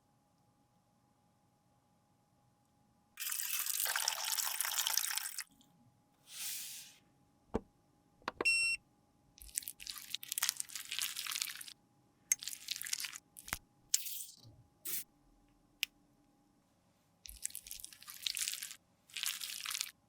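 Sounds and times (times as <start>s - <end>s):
makeup spray hiss: 6.3s - 7.0s.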